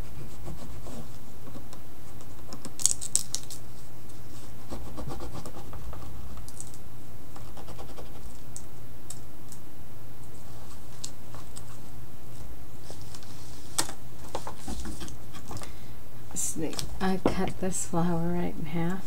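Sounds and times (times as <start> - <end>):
hands scratching on paper: 0.0 - 1.6, 4.4 - 6.5, 7.4 - 8.4
steady low hum: 0.0 - 19.0.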